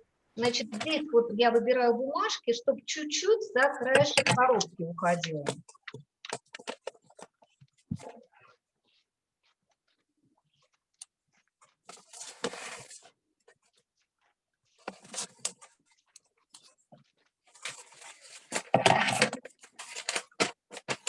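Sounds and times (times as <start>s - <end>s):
wrapping paper rustling: 14.7s - 18.7s.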